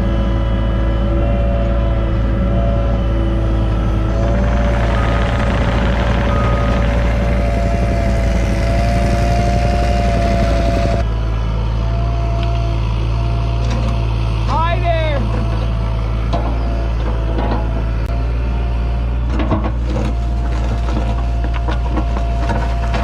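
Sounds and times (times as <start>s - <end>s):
hydraulic whine: 0.0s - 12.8s
excavator diesel drone: 0.0s - 23.0s.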